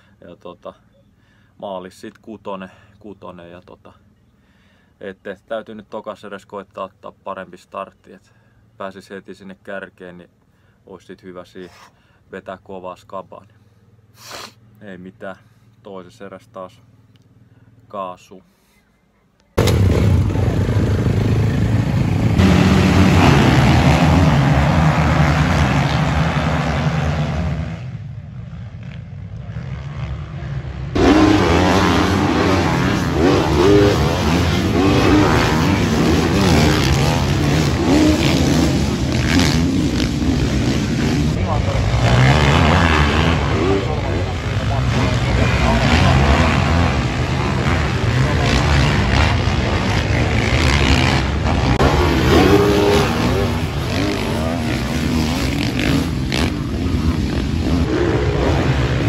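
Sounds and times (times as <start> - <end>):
motocross engines revving: 19.6 - 28.0, 28.9 - 59.0.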